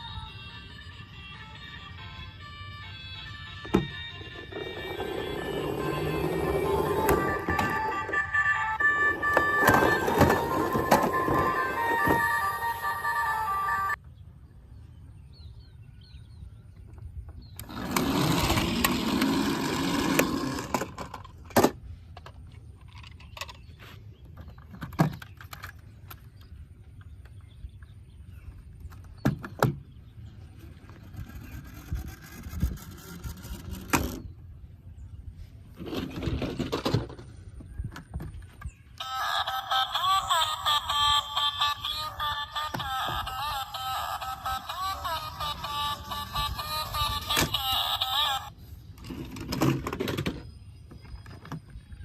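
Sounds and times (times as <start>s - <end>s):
toy vehicles handling noise: 2.8s - 14.0s, 17.5s - 27.4s, 30.5s - 34.3s, 35.6s - 52.0s.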